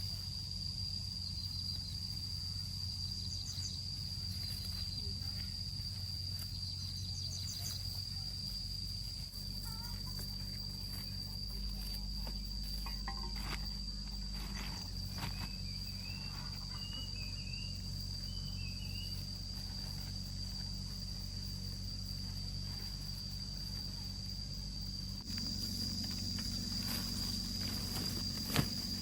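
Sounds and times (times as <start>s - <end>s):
insects chirring: 0.0s - 29.0s
low steady hum: 0.0s - 29.0s
bird chirps: 15.2s - 19.3s.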